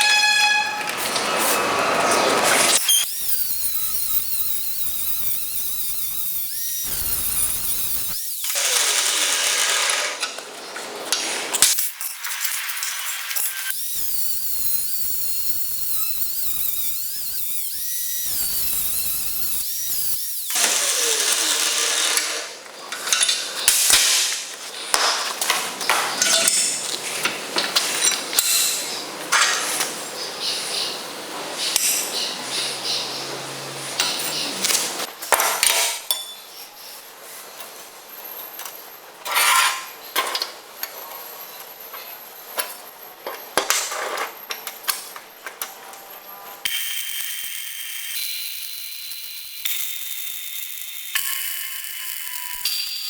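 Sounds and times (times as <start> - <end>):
power tool whining: 0.8 - 10.4, 13.3 - 22.6.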